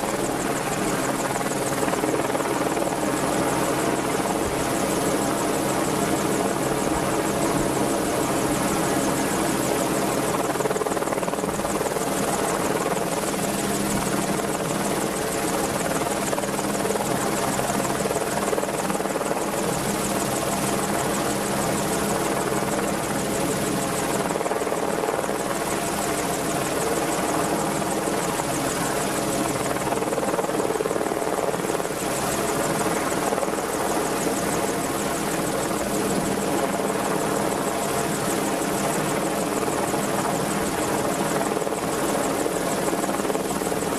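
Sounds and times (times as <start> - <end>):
helicopter rotor and turbine drone: 0.0 - 43.9.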